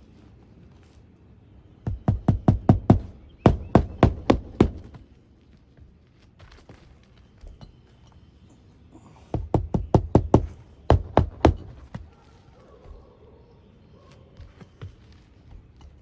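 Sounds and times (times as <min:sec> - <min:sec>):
hammering nails into shingle: 0:01.8 - 0:05.1, 0:09.3 - 0:12.2.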